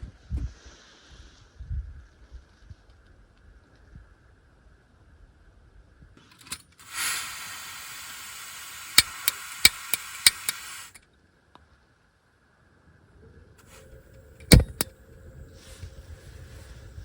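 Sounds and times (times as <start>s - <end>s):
gas hissing from burner: 6.3s - 11.0s, 13.7s - 17.0s
igniter clicking: 6.3s - 11.0s, 13.7s - 14.9s.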